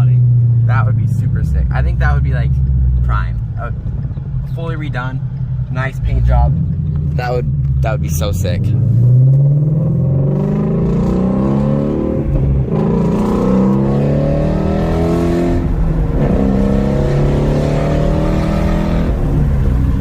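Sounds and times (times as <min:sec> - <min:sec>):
car engine accelerating hard: 0:05.6 - 0:20.0.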